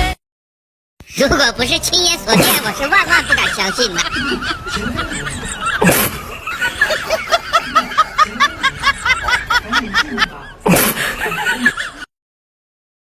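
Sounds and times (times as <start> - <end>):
rapid high-pitched laughter: 2.1 - 12.0.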